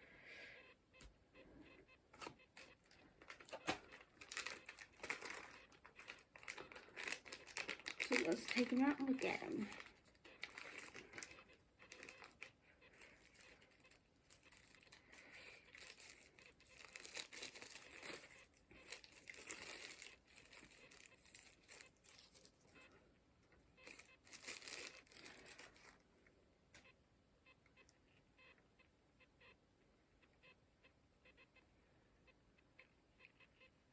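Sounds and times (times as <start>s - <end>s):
plastic packaging crinkling: 2.1s - 23.0s, 23.8s - 26.0s.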